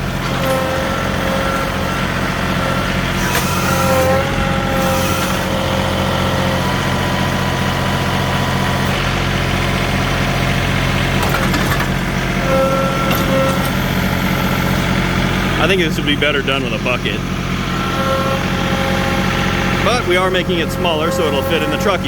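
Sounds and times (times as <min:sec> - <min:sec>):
diesel tractor engine running: 0:00.0 - 0:22.0
high steady whine: 0:12.9 - 0:22.0.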